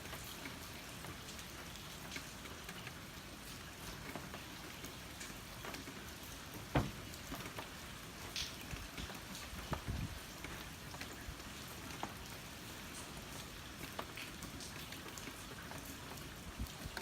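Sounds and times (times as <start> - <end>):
heavy rain falling: 0.0 - 17.0
loud thump: 6.7 - 7.0.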